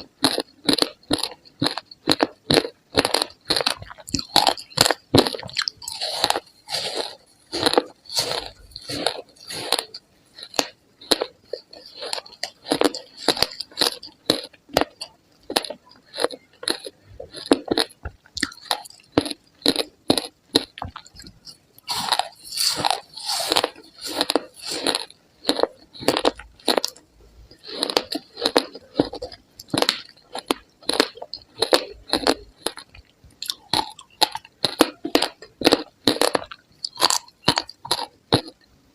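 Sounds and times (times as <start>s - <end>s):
chewing ice crunches: 0.0s - 38.7s.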